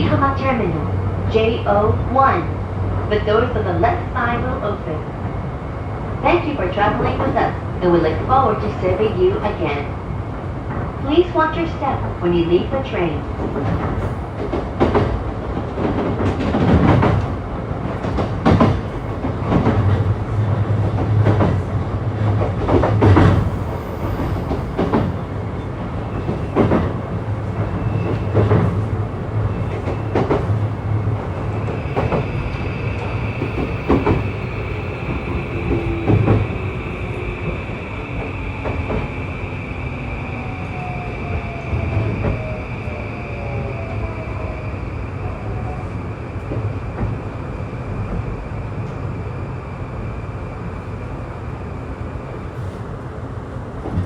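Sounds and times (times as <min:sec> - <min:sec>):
low train rumble: 0:00.0 - 0:54.0
steady high tone: 0:31.4 - 0:45.6.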